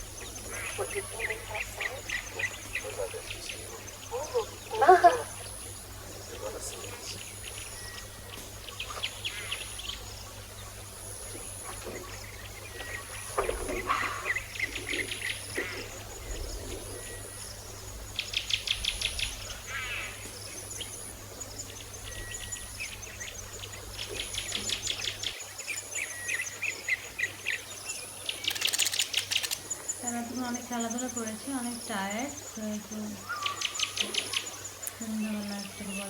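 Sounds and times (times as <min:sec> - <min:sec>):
budgerigar chattering: 0:00.0 - 0:09.6.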